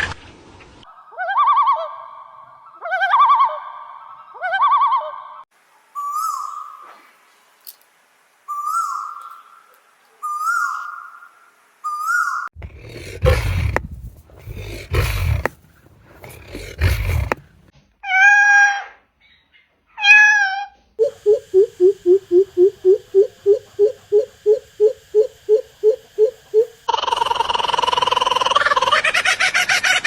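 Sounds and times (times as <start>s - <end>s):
harsh bird calls: 10.2s - 17.7s
wavering cat-like bird calls: 11.9s - 28.9s.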